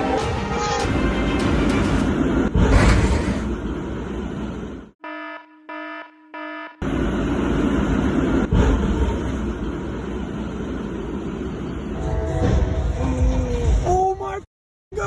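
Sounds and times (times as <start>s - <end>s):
electronic alarm beeps: 5.0s - 6.8s.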